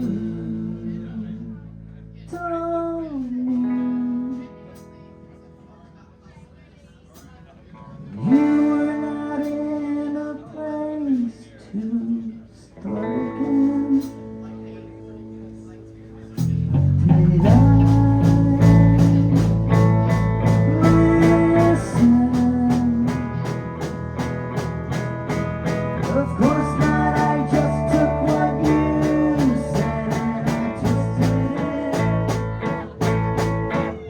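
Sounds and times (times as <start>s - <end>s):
rock band playing live: 16.4s - 34.0s.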